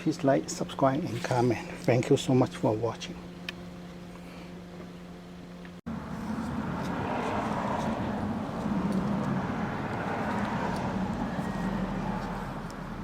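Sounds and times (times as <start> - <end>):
vehicle rumble: 5.5 - 13.0.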